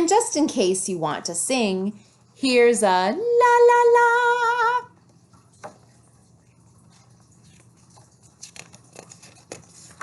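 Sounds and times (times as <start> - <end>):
paper page rustling: 6.9 - 10.0.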